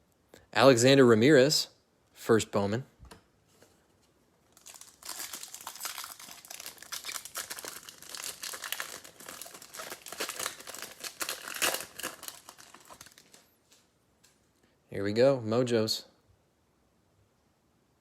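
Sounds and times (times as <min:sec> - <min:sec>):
foil wrapper crinkling and tearing: 0:04.5 - 0:13.5.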